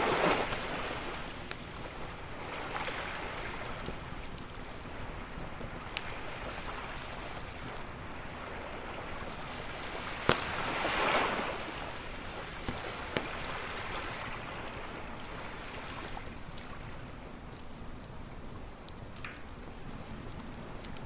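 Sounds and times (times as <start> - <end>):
ocean waves breaking on beach: 0.0 - 16.8
wood campfire crackling: 0.0 - 21.0
sharp fire pops: 10.2 - 10.8.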